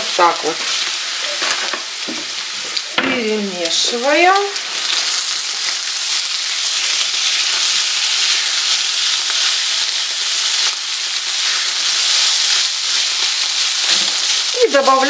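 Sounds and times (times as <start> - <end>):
meat sizzling in a frying pan: 0.0 - 15.0
spatula stirring in pan: 4.8 - 15.0.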